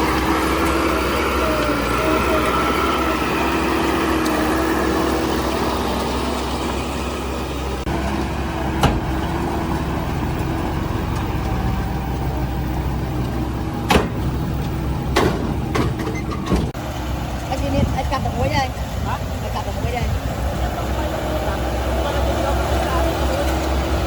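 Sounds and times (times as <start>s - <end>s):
diesel engine of earthmoving machine: 0.0s - 24.0s
sharp knocks: 8.8s - 9.4s, 13.9s - 14.4s.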